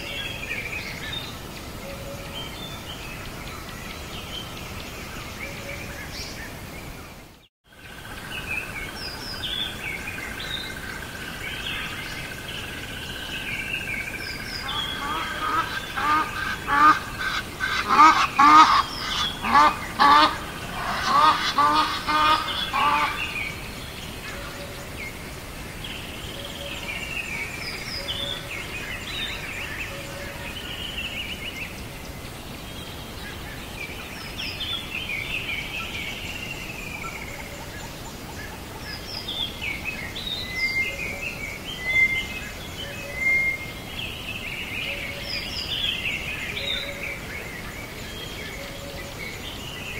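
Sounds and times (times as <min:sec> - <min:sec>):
birds chirping and twittering: 0:00.0 - 0:49.9
loud repeated bird calls: 0:13.5 - 0:23.6.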